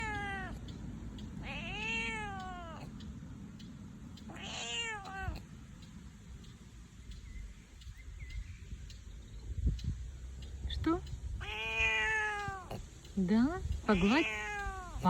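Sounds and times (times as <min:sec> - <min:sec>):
cat meowing: 0:00.0 - 0:00.8, 0:01.4 - 0:03.0, 0:04.2 - 0:05.6, 0:11.4 - 0:12.9, 0:13.8 - 0:15.0.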